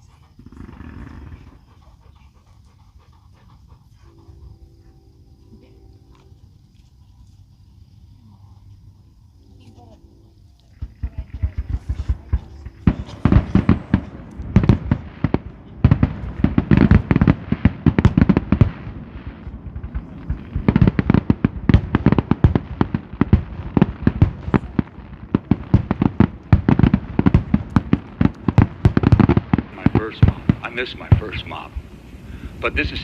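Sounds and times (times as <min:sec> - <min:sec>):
fireworks bangs and crackles: 0:10.8 - 0:33.0.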